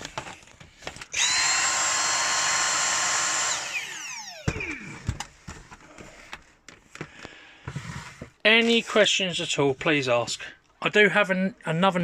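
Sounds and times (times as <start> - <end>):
vacuum cleaner motor whining: 1.1 - 5.1.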